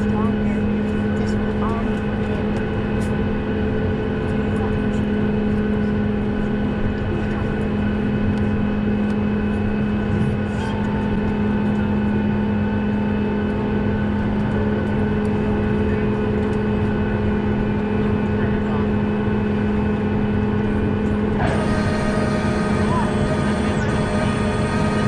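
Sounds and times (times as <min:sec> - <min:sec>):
airliner cabin drone: 0:00.0 - 0:25.0
steady whining tones: 0:06.4 - 0:25.0
mid-pitched tone: 0:21.4 - 0:25.0.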